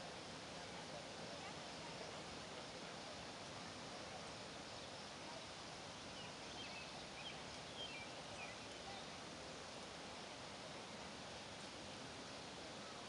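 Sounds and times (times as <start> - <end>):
steady faint hiss: 0.0 - 13.0.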